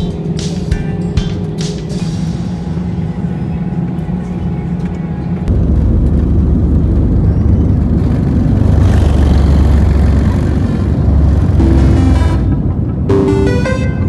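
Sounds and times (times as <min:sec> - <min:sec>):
vehicle rumble from inside cabin: 0:03.2 - 0:13.5.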